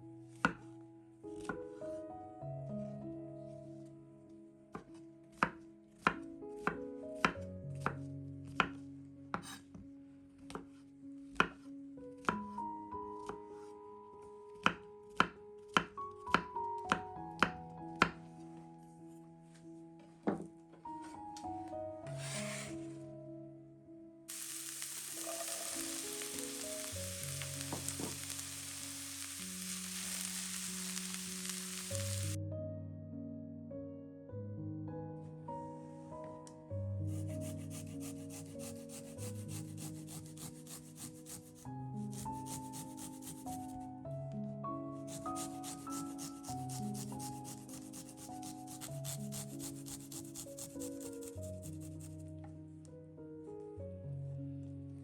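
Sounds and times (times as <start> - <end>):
soft background music: 0.0 - 55.0
food sizzling in oil: 24.3 - 32.4, 45.4 - 50.4
knife chopping on cutting board: 45.1 - 51.8.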